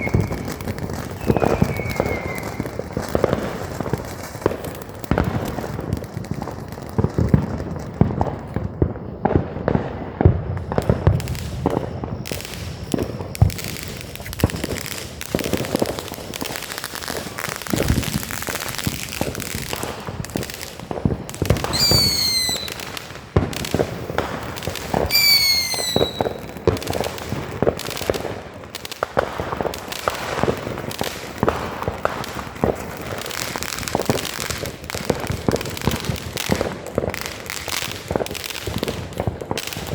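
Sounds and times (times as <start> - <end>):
falling firework whistles: 0.0 - 5.4, 10.6 - 20.2, 21.3 - 28.2
fireworks bangs and crackling: 0.0 - 39.9.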